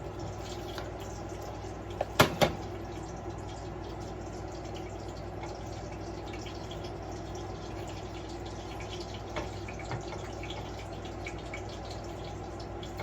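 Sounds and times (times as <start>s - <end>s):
low kitchen hum: 0.0s - 13.0s.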